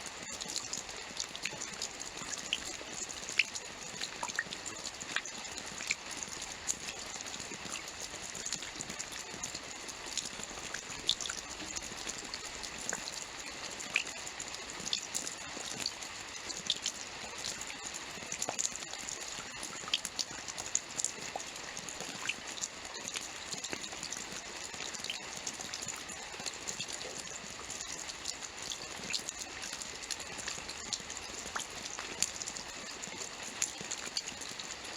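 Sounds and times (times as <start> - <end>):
raindrops pattering on surface: 0.0 - 34.9.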